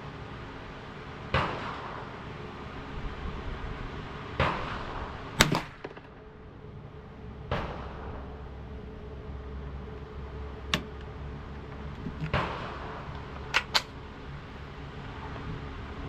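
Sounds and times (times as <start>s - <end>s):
gunshots with echo: 4.4s - 6.4s, 7.5s - 8.3s.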